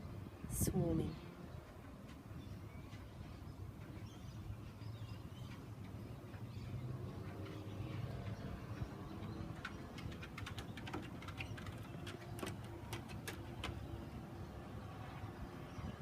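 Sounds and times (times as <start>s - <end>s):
sharp ticks: 5.4s - 13.8s.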